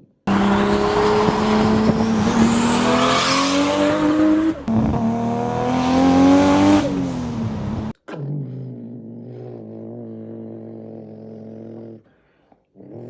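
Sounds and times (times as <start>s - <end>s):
car engine revving: 0.3s - 8.0s.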